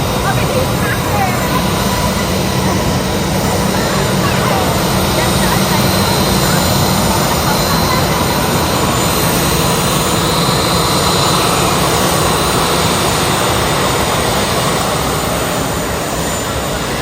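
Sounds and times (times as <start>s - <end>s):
high engine whine: 0.0s - 17.0s
jet engines idling: 0.0s - 17.0s.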